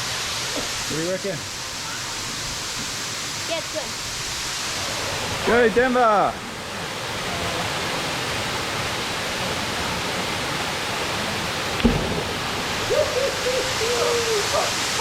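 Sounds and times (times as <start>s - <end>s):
waterfall rushing: 0.0s - 15.0s
sudden thump: 11.8s - 12.5s
short wavering call: 12.8s - 14.8s.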